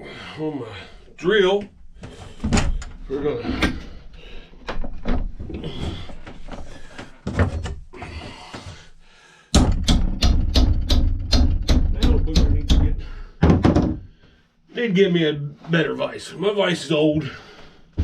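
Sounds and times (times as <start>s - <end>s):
fast regular knocks: 9.5s - 14.2s.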